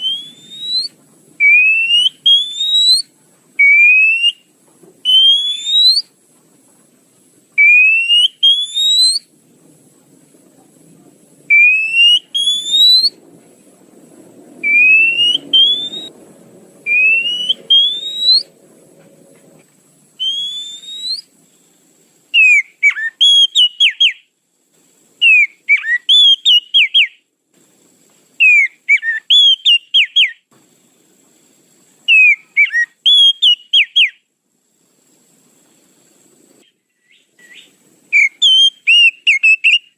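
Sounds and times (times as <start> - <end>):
rising whistled bird notes: 0.0 - 6.1, 7.6 - 9.3, 11.5 - 13.2, 14.1 - 18.7, 20.2 - 21.4, 22.3 - 24.3, 25.2 - 27.2, 28.4 - 30.4, 32.1 - 34.2, 36.6 - 39.9.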